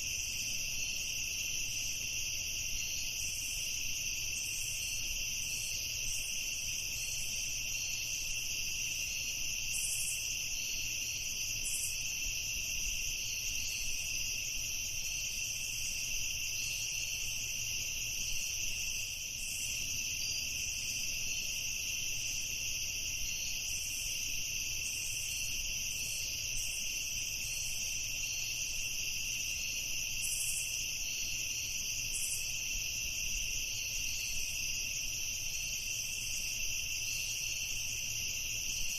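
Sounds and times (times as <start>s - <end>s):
crickets and insects trilling: 0.0s - 38.9s.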